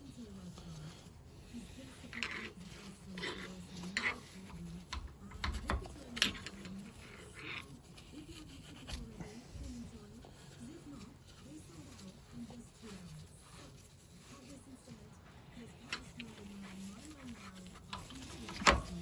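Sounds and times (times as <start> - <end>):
wire wool scratching metal: 0.0 - 19.0.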